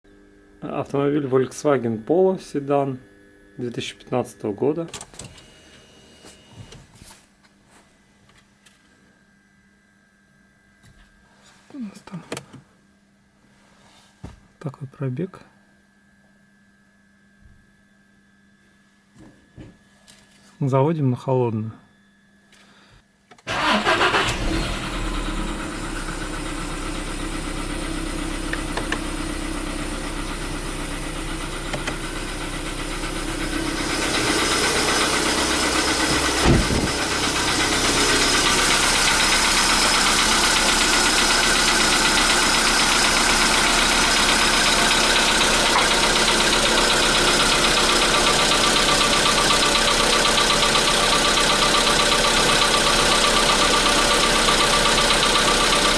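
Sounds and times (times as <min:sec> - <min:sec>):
petrol engine starting and idling: 0:23.5 - 0:55.9
short engine thump: 0:35.9 - 0:37.4.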